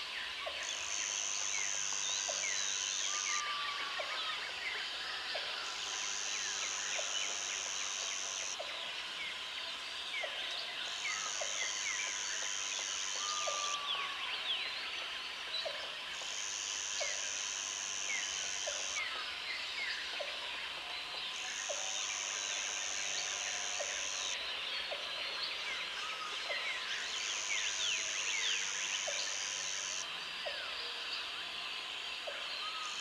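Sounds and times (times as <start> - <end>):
insects and birds chirping: 0.0 - 33.0
high insect buzz: 0.6 - 3.7, 5.9 - 8.6, 16.2 - 19.1, 27.3 - 30.0.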